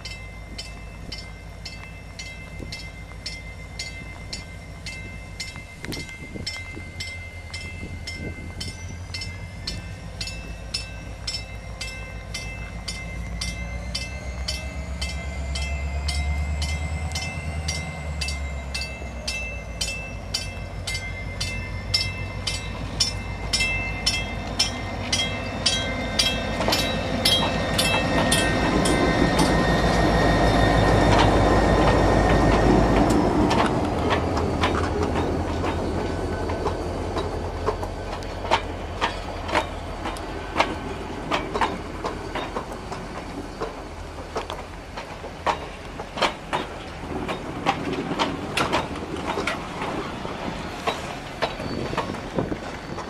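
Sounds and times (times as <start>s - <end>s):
diesel locomotive engine rumbling: 0.0s - 53.0s
locomotive bell ringing: 0.0s - 53.0s
train wheels clicking: 0.0s - 53.0s.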